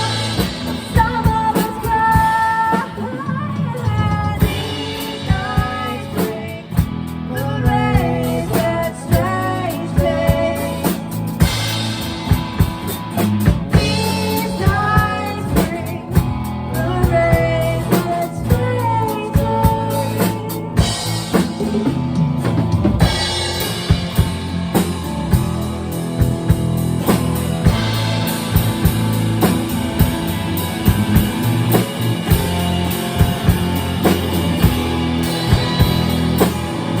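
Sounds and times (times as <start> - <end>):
person singing: 0.0 - 11.2, 13.8 - 21.0
pop-rock band playing: 0.0 - 37.0.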